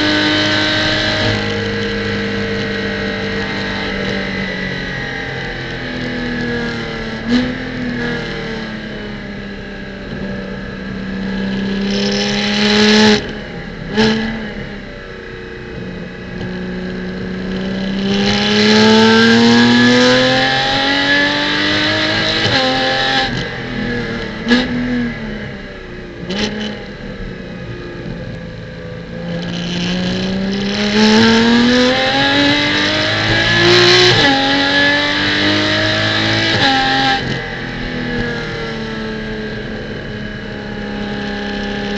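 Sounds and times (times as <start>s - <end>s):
racing engine revving: 11.2s - 14.7s, 15.7s - 25.6s, 29.0s - 41.9s.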